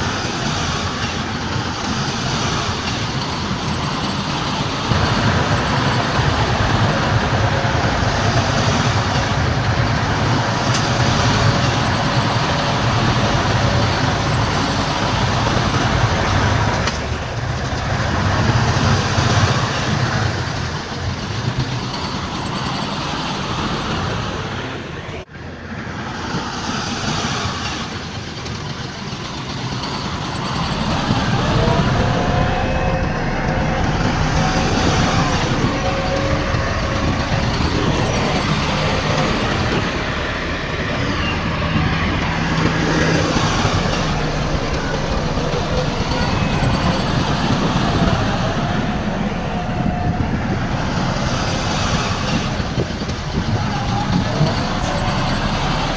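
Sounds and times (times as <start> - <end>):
diesel machinery engine drone: 0.0 - 55.9
high whining tone: 27.4 - 55.9.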